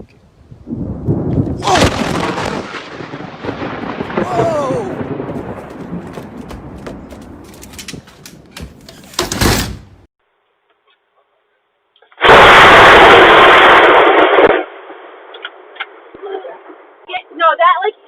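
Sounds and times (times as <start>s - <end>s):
thunder rumbling: 0.6s - 8.6s
sharp thunder crack: 0.7s - 7.4s, 12.2s - 15.3s.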